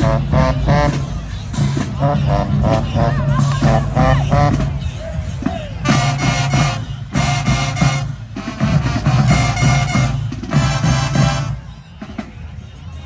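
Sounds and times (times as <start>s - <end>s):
steady bass: 0.0s - 11.7s
brass chords: 0.0s - 12.4s
marching drums: 0.0s - 12.8s.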